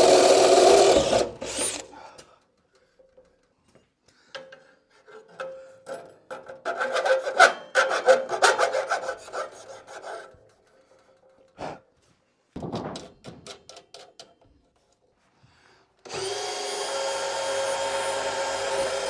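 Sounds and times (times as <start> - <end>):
cordless drill boring: 0.0 - 1.9, 16.1 - 19.0.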